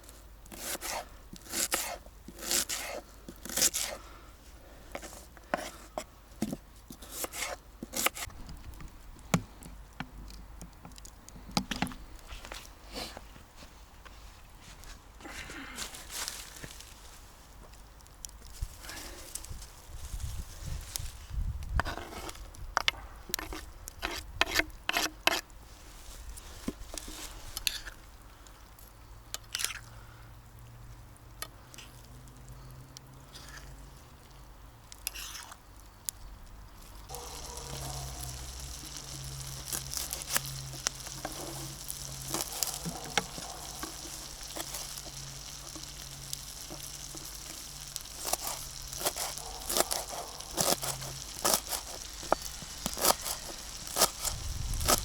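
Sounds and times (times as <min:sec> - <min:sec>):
food sizzling in a pan: 0:37.1 - 0:55.0.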